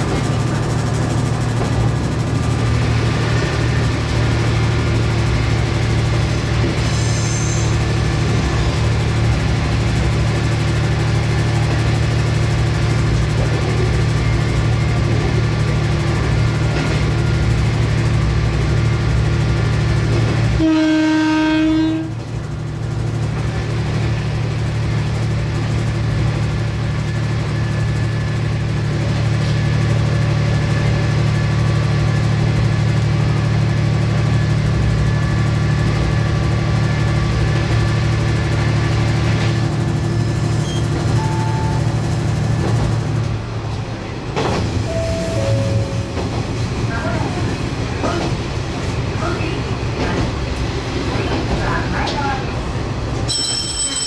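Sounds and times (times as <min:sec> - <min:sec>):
diesel railcar rumbling: 0:00.0 - 0:54.0
train horn blast: 0:20.6 - 0:22.2.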